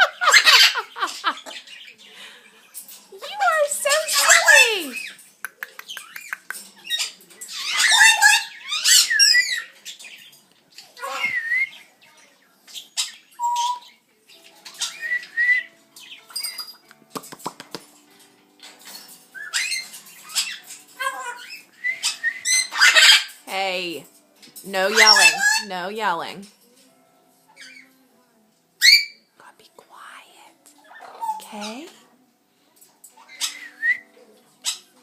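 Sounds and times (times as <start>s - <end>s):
parrot squawking and whistling: 4.0s - 5.2s, 7.0s - 9.7s, 13.0s - 14.0s, 19.4s - 23.3s, 24.9s - 25.7s, 28.8s - 29.2s, 33.3s - 34.1s
parrot clicks: 5.4s - 6.7s.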